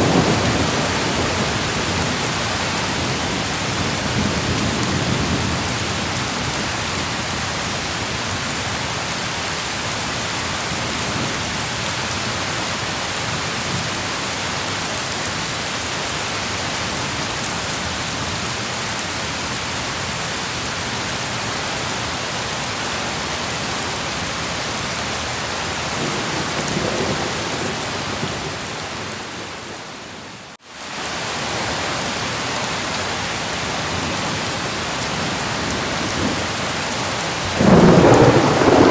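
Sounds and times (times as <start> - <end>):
thunder rumbling: 0.0 - 6.3, 25.8 - 30.0, 37.3 - 38.9
heavy rain: 0.0 - 38.9.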